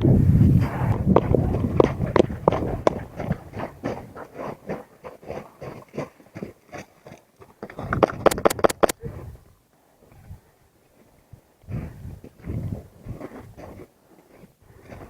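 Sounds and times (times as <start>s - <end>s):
footsteps on hard ground: 0.5s - 8.4s.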